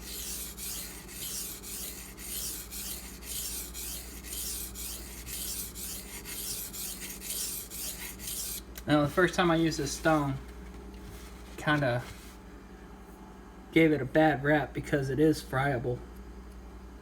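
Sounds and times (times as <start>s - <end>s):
knife rasping on whetstone: 0.0s - 8.6s.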